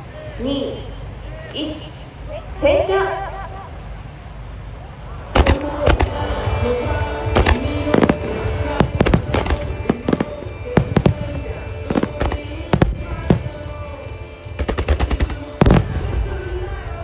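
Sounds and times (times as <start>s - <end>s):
fireworks bangs: 0.0s - 17.0s
pop song over loudspeakers: 5.5s - 17.0s.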